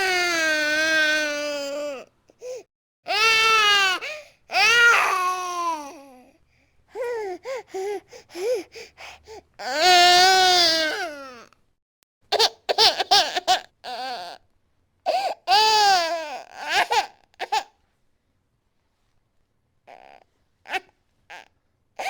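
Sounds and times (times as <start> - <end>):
baby crying: 0.0 - 6.2, 9.6 - 11.5, 15.1 - 17.7, 19.9 - 21.5.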